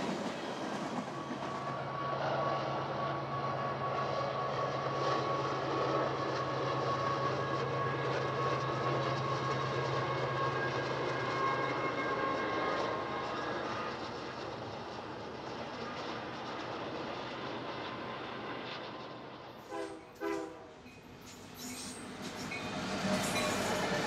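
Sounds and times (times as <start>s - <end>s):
train cars rumbling: 19.7s - 24.0s
thin high whining tones: 20.2s - 24.0s.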